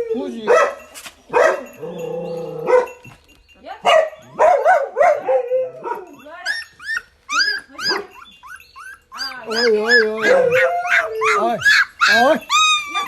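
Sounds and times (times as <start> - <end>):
dogs barking: 0.3 - 3.0, 3.8 - 6.8, 7.5 - 13.0
dog yelping: 3.9 - 13.0
dog whining: 5.4 - 13.0.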